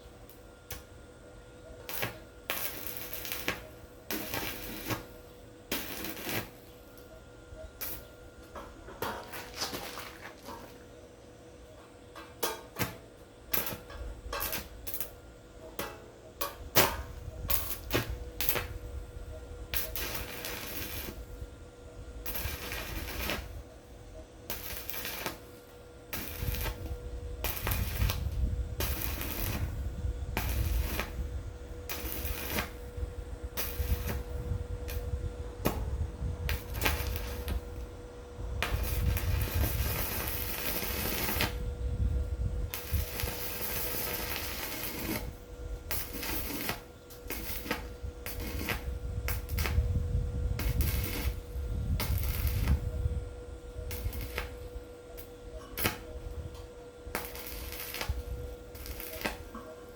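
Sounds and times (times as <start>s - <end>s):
faint steady hum: 0.0s - 59.9s
noisy low rumble: 26.1s - 43.4s.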